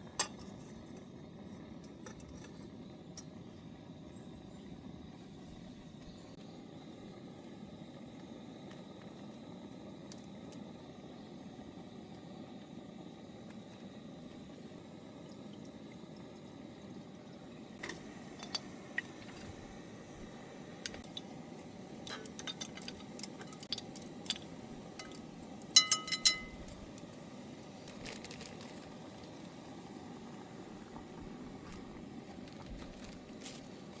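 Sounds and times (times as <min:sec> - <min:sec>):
tableware clicking and tapping: 0:25.8 - 0:26.5.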